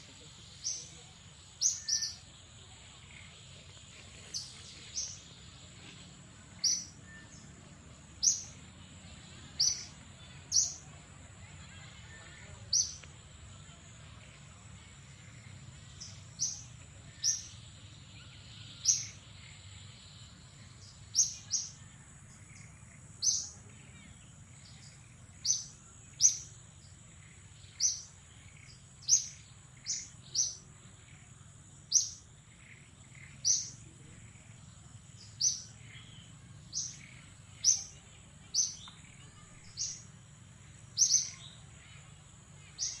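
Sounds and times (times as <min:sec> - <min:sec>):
faint steady high tone: 0:06.5 - 0:26.6.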